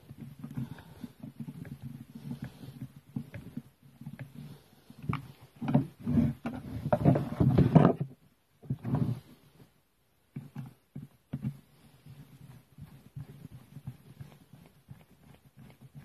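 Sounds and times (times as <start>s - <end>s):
parts and tools knocking and rattling: 5.6s - 8.2s.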